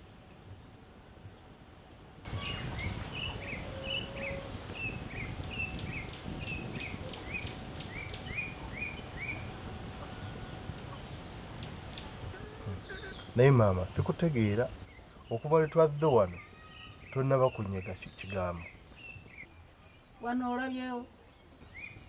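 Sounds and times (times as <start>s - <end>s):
outdoor background noise: 0.0s - 22.0s
bird chirping: 1.8s - 22.0s
high-pitched whine: 2.3s - 18.6s.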